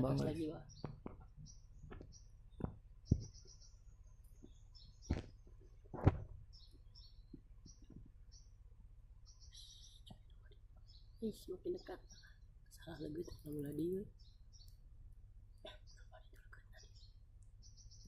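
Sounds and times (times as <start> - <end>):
high-pitched bird chirps: 9.3 - 10.2.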